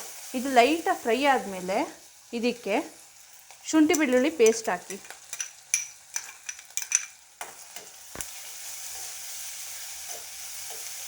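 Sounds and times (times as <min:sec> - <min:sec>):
paste sizzling in hot oil: 0:00.0 - 0:11.0
spoon scraping a pan: 0:03.5 - 0:11.0.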